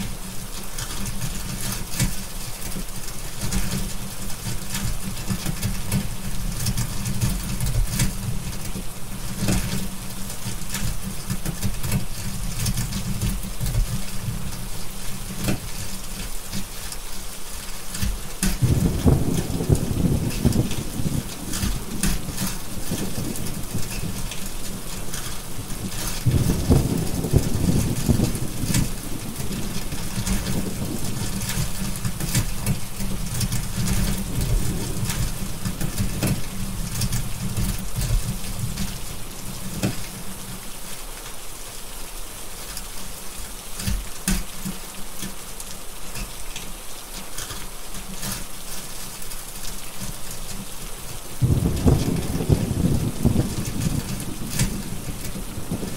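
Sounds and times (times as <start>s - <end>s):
heavy rain: 0.0s - 55.9s
thunder rumbling: 18.6s - 40.1s, 51.4s - 55.9s.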